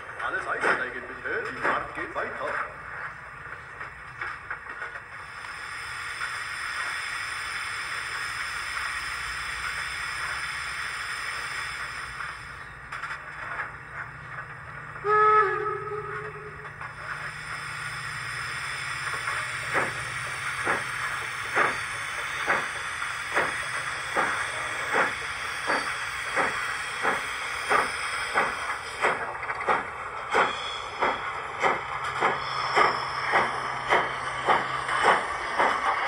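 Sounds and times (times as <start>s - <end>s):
locomotive exhaust chuffs: 0.0s - 36.0s
steady steam hiss: 4.6s - 12.9s, 14.6s - 36.0s
steam whistle blast: 15.0s - 16.7s.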